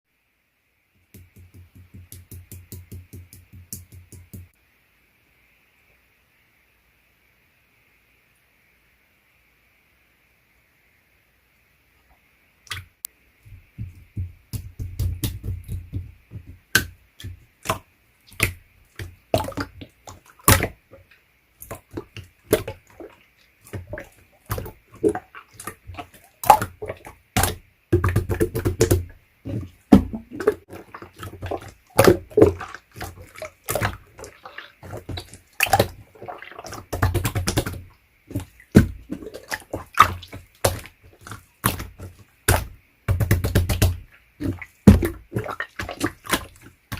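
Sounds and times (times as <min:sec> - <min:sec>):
soft low squelching: 0:12.7 - 0:46.9.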